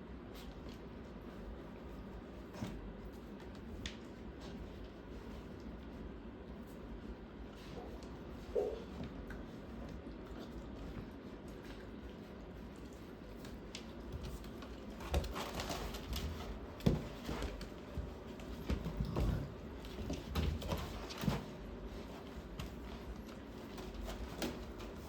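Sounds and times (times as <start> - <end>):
puppies snuffling: 0.3 - 25.0
mat rustling and clicks: 7.6 - 25.0.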